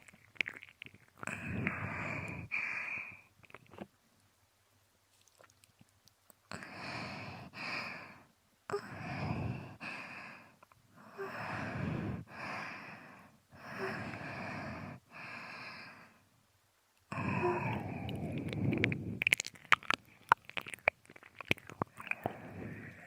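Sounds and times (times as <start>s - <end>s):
breathy mouth sounds: 0.0s - 3.9s, 5.2s - 16.1s, 17.1s - 23.0s
sighing sounds: 17.1s - 19.4s, 21.9s - 23.0s.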